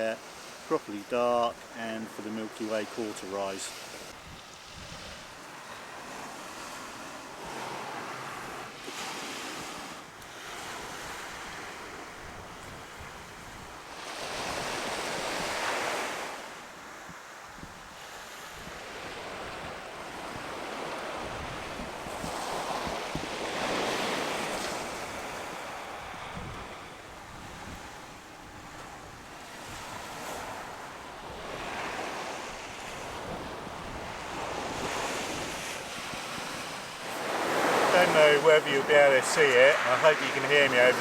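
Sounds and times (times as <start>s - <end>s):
sea waves breaking on beach: 0.0s - 41.0s
wind buffeting microphone: 4.0s - 5.4s, 17.5s - 39.0s.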